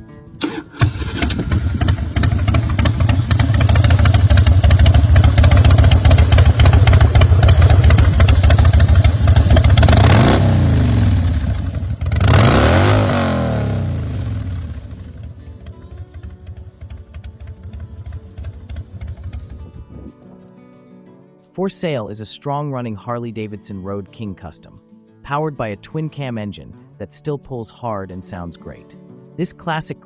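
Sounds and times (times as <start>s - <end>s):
motorcycle engine revving: 0.4s - 20.1s.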